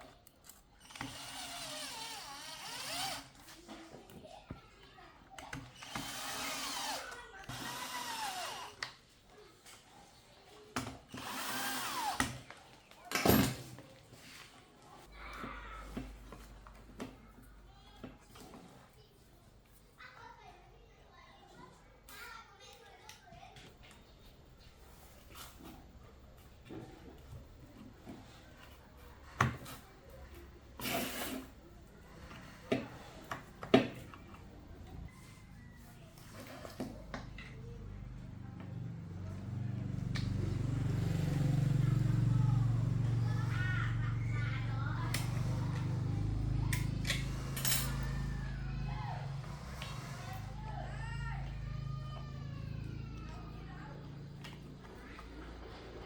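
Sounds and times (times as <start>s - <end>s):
small electric motor whirring: 0.8s - 3.4s, 5.7s - 8.8s, 11.1s - 12.4s.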